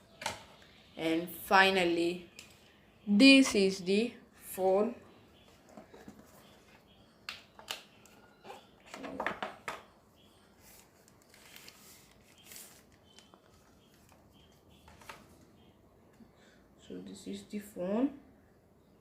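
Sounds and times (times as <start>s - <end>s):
phone packaging rustling: 10.6s - 15.4s.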